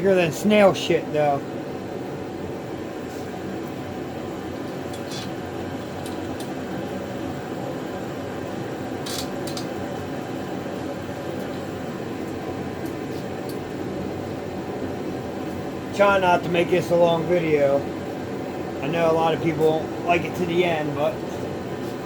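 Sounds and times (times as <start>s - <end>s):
air-conditioning hum: 0.0s - 22.0s.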